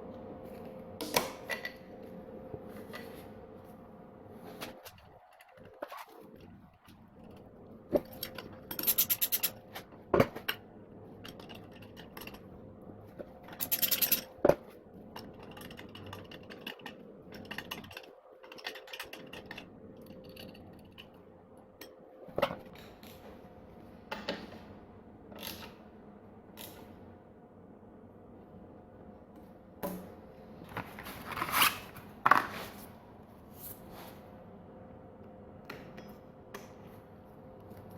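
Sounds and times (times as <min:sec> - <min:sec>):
faint steady hum: 0:00.0 - 0:37.9
rapid clicking of hand tools: 0:08.0 - 0:09.6, 0:13.5 - 0:14.4, 0:15.1 - 0:21.1.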